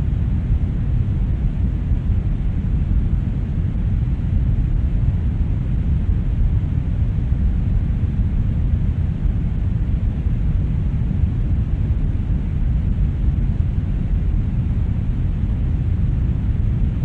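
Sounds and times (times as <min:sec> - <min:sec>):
brown noise: 0:00.0 - 0:17.0.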